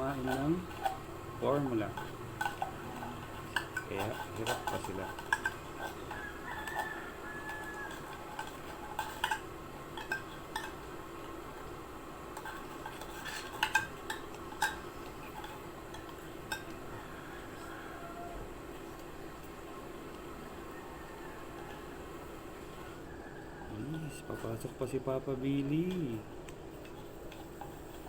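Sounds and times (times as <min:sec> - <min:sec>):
utensils clinking against a dish: 0:00.0 - 0:17.9, 0:21.0 - 0:21.9, 0:23.6 - 0:28.0
low background hum: 0:00.0 - 0:28.0.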